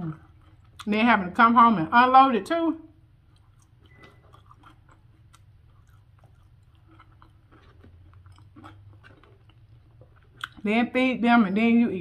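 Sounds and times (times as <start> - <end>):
person chewing food: 0.0 - 0.9, 3.0 - 10.6
low steady hum: 0.0 - 12.0.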